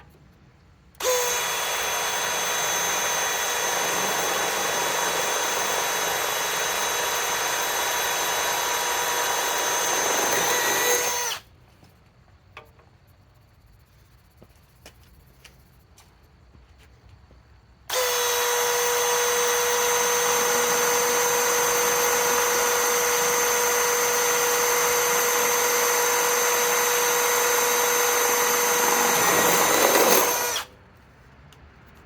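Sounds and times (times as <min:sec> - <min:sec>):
drill whining through steel: 0:01.0 - 0:11.4, 0:17.9 - 0:30.7.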